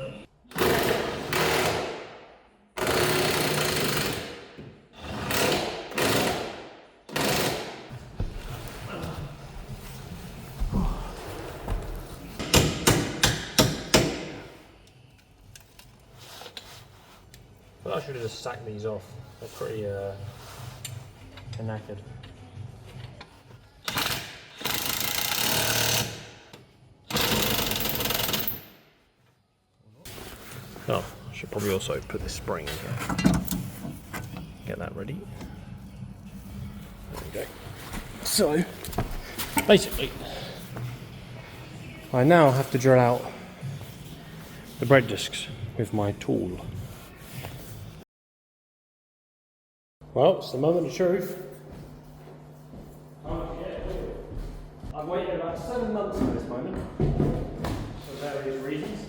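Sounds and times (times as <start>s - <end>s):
power tool bursts: 23.9s - 26.3s.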